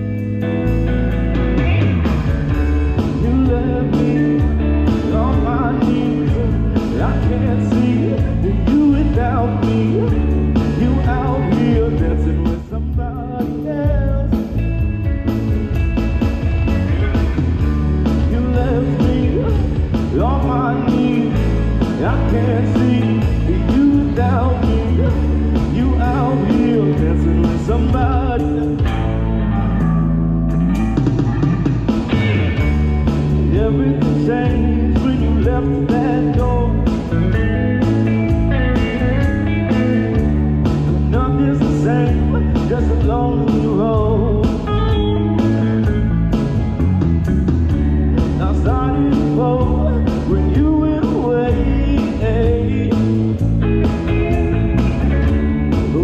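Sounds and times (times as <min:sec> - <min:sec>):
indie rock band playing: 0:00.0 - 0:56.0
sliding electric guitar lead: 0:00.0 - 0:56.0.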